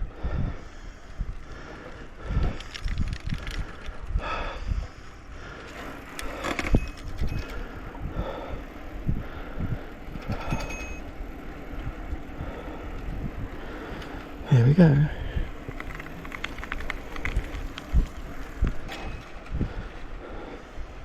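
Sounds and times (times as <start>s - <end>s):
person breathing heavily: 0.0s - 11.0s, 12.1s - 16.2s, 19.5s - 21.0s
bicycle rumbling and rattling: 0.0s - 21.0s.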